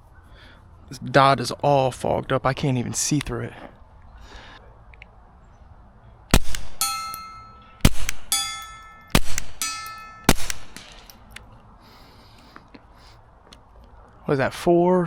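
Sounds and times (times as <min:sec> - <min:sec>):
suppressed pistol shots: 0:06.3 - 0:11.2
steel target plate ringing: 0:06.4 - 0:11.1.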